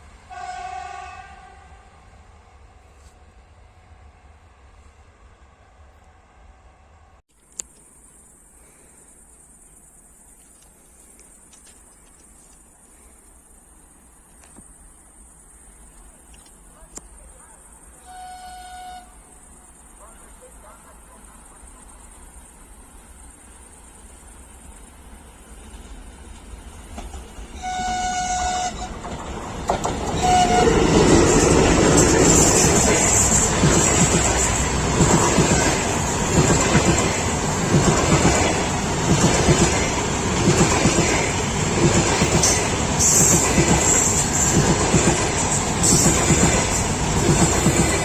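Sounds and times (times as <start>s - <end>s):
locomotive horn: 0.3s - 2.0s, 18.0s - 19.3s, 27.6s - 29.1s, 30.1s - 31.5s
crickets chirping: 7.3s - 48.0s
train rumble: 22.1s - 48.0s.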